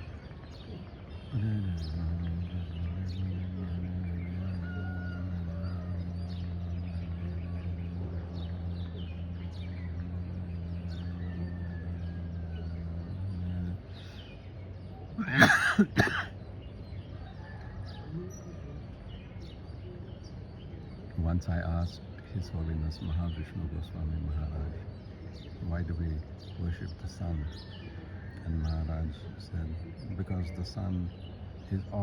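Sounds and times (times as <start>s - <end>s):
steady low tone: 0.0s - 17.2s
small birds chirping: 0.0s - 32.0s
loud sharp calls: 15.1s - 16.4s.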